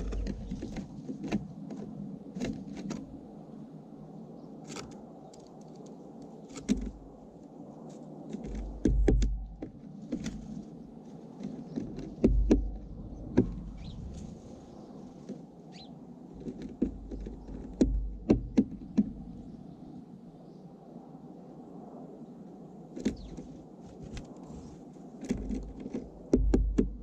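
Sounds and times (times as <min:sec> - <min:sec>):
dull thumps: 0:11.9 - 0:13.8, 0:26.3 - 0:27.0.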